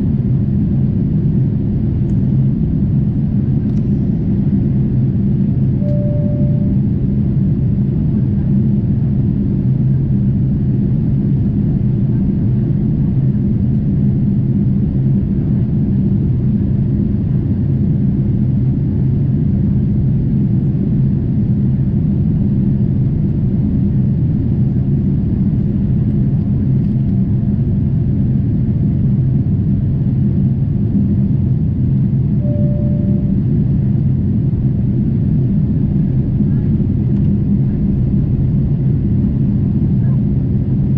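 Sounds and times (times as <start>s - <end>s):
airplane cabin engine rumble: 0.0s - 40.9s.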